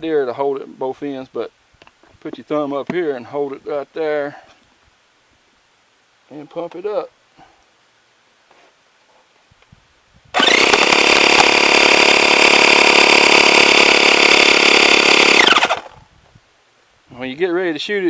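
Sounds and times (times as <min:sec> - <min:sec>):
electric air compressor running: 0:10.4 - 0:16.0.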